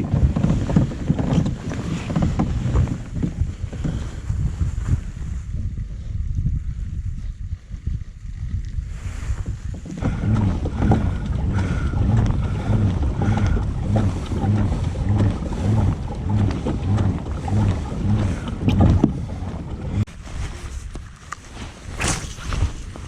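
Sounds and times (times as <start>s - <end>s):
kayak pedal drive whirring: 0.0s - 4.4s, 9.6s - 20.2s
wind noise on microphone: 0.0s - 23.0s.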